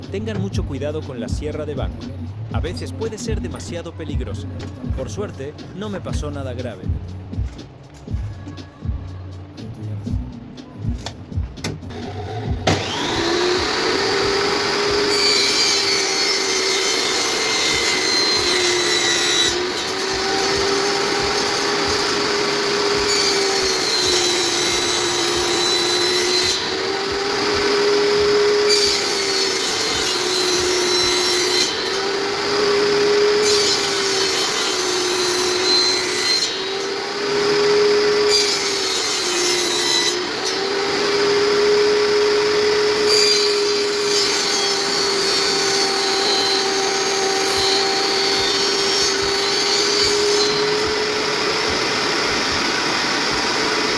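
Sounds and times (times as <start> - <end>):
saw blade cutting wood: 11.0 - 53.9
table saw motor whining: 11.9 - 53.9.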